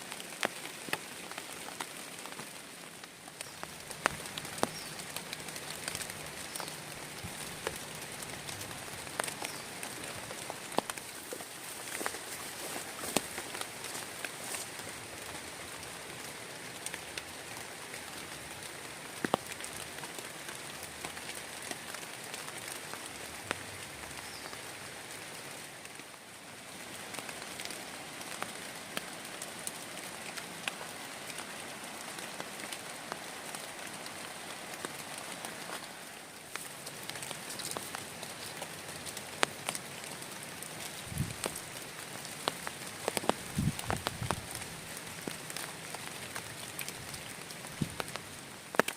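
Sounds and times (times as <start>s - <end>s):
heavy rain falling: 0.0s - 48.9s
raindrop impacts: 0.2s - 15.5s, 19.1s - 23.6s, 34.7s - 48.9s.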